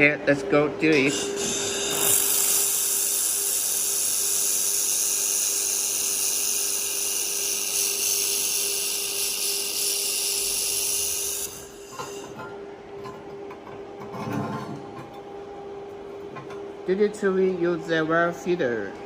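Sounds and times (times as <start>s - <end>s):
laser welder hissing: 1.0s - 12.3s.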